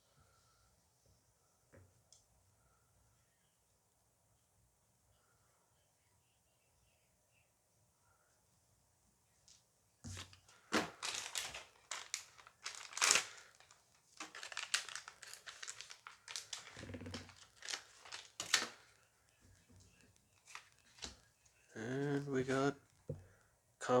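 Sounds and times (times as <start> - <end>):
plastic wrapper crinkling and tearing: 10.2 - 19.0, 20.2 - 21.3.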